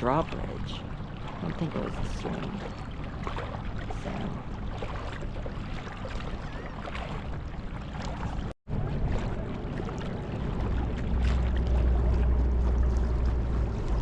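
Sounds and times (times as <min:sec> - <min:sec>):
small boat motor running: 0:00.0 - 0:14.0
water noise: 0:00.0 - 0:14.0.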